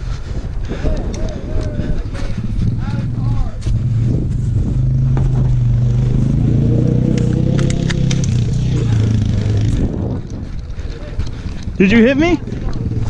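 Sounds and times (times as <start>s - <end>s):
atv engine running: 0.5s - 13.0s
sharp clicks and rattles: 0.7s - 4.5s, 7.1s - 13.0s.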